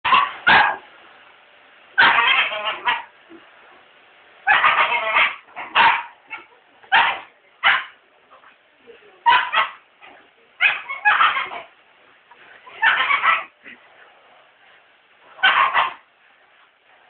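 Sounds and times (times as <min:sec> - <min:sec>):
dog barking: 0:00.0 - 0:00.8, 0:02.0 - 0:03.1, 0:04.5 - 0:08.0, 0:09.2 - 0:09.8, 0:10.6 - 0:11.7, 0:12.8 - 0:13.5, 0:15.4 - 0:16.0.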